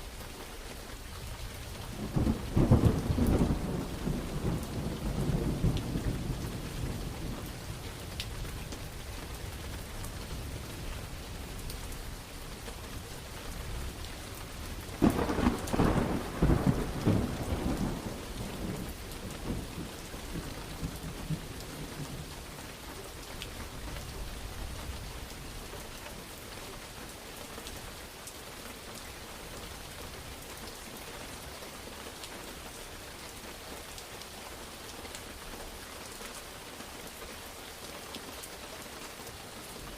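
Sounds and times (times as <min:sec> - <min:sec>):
heavy rain falling: 0:00.0 - 0:39.9
thunderclap with rolling rumble: 0:01.9 - 0:08.8, 0:13.7 - 0:22.4.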